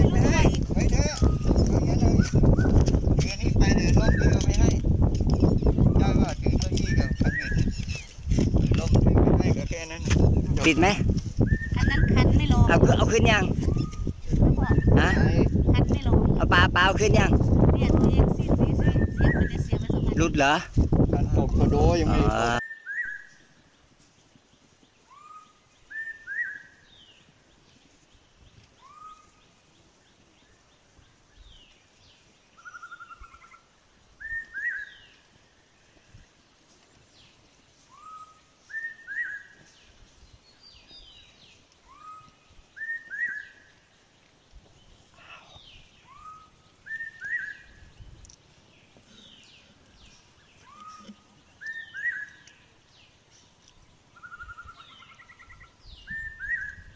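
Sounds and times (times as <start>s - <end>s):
bird singing a repeated phrase: 0.0s - 20.6s, 21.2s - 23.5s, 34.2s - 35.2s, 37.9s - 44.6s, 45.4s - 56.9s
faint bird chirps: 22.6s - 36.4s, 37.0s - 56.9s.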